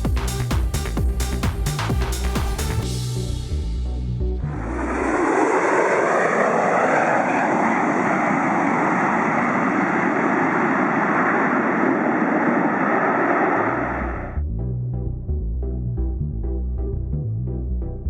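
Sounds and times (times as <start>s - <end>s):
aircraft engine running: 0.0s - 14.4s.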